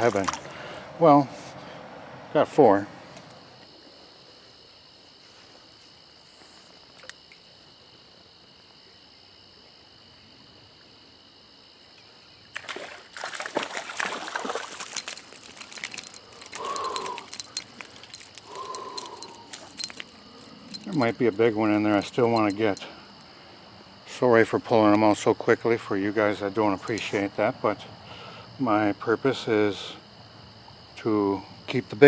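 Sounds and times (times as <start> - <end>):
stream water trickling: 12.0 - 24.0
splashing and clattering: 12.5 - 21.2.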